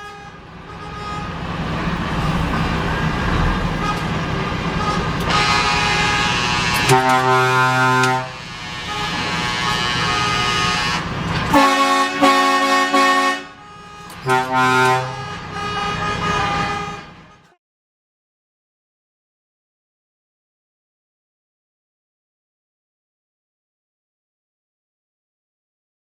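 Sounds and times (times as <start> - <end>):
engine and road noise: 0.0 - 17.6
truck air horn blasts: 0.0 - 17.6.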